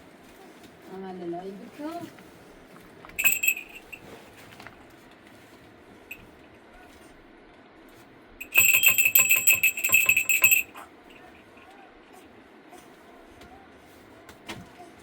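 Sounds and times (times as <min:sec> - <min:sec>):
small metal bell ringing: 0:03.2 - 0:04.1, 0:08.4 - 0:11.2.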